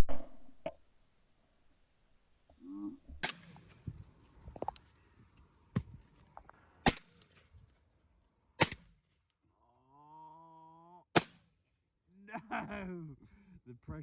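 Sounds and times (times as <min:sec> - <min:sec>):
shotgun shots: 0:03.2 - 0:04.4, 0:06.7 - 0:07.6, 0:08.6 - 0:09.0, 0:11.2 - 0:11.6.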